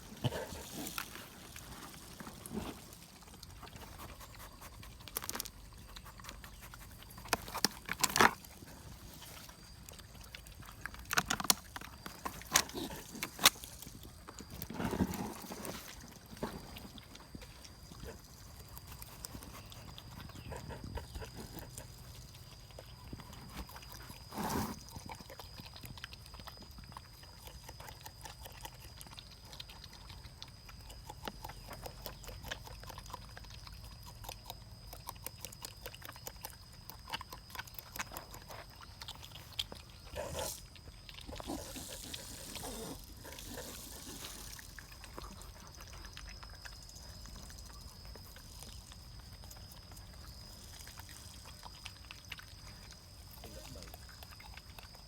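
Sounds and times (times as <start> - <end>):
wet crunching chewing: 0.0 - 55.0.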